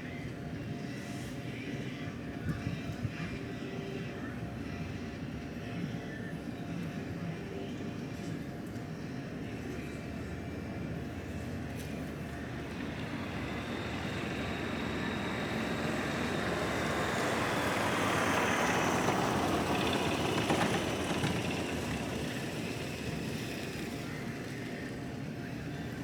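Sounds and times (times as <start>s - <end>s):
vehicle passing with rumble: 11.8s - 25.1s.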